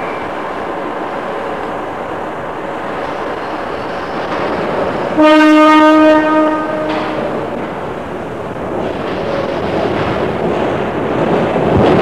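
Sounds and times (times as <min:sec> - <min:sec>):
electric train rumbling: 0:00.0 - 0:12.0
train horn blast: 0:05.2 - 0:07.5.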